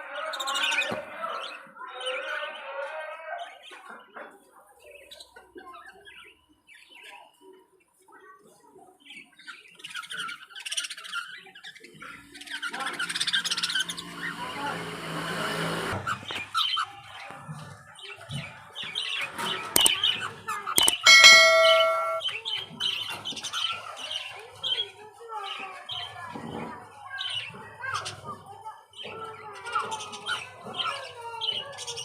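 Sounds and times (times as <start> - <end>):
sharp clicks: 19.8 - 20.0, 20.8 - 22.2
loud steady tone: 20.8 - 22.2.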